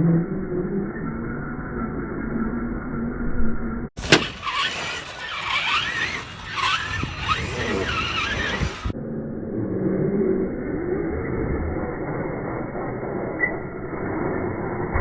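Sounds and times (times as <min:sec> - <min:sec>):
rc truck electric motor whine: 0:04.0 - 0:09.0
tyre and chassis noise: 0:04.0 - 0:09.0.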